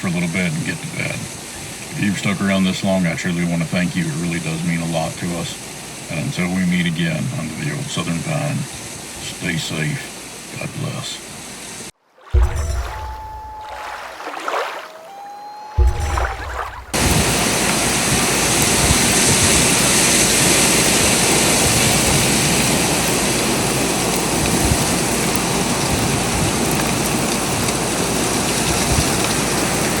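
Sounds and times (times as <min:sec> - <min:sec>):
thump: 0:12.4 - 0:14.0.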